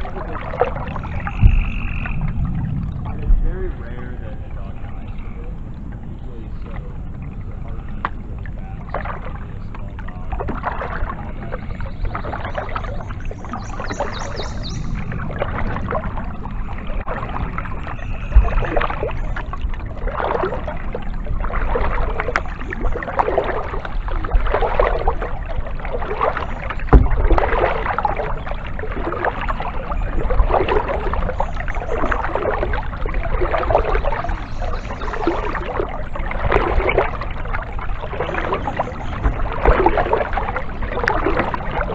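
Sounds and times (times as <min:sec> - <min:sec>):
kayak paddle splashing: 0:00.0 - 0:41.9
low rumble: 0:00.0 - 0:41.9
sharp thumps: 0:01.3 - 0:02.3, 0:26.9 - 0:27.5.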